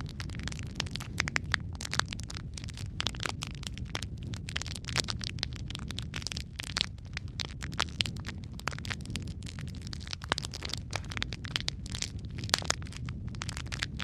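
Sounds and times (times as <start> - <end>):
fire pops and snaps: 0.0 - 14.0
low rumble of burning logs: 0.0 - 14.0.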